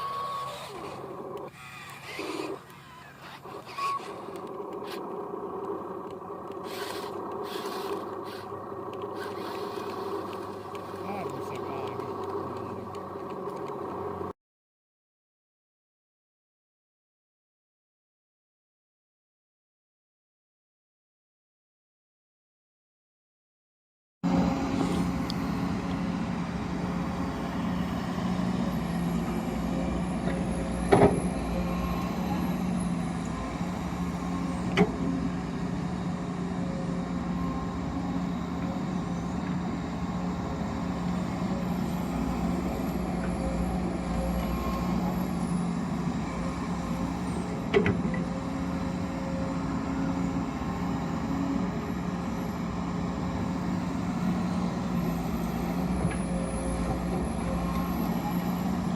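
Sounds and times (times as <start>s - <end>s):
machine drone: 0.0s - 14.3s, 24.2s - 58.9s.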